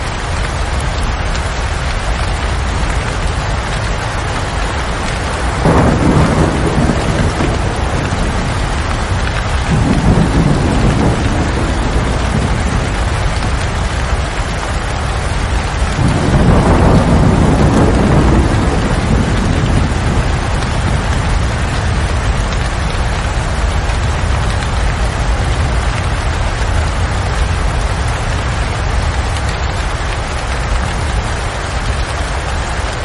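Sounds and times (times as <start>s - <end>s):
heavy rain: 0.0s - 33.0s
rolling thunder: 3.3s - 28.6s.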